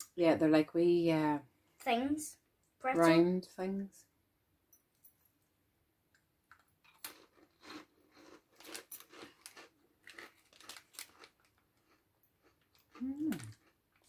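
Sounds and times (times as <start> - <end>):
snacks crunching while chewed: 6.5 - 14.0.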